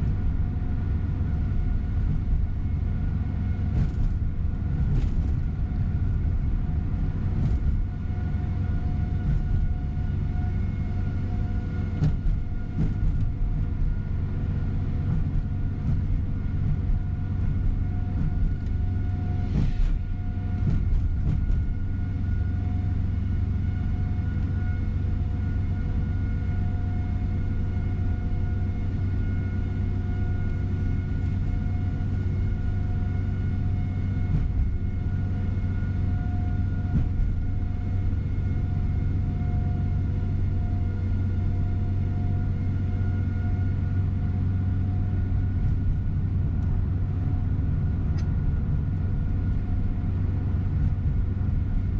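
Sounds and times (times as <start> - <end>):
diesel engine drone: 0.0 - 51.9
road rumble: 0.0 - 51.9.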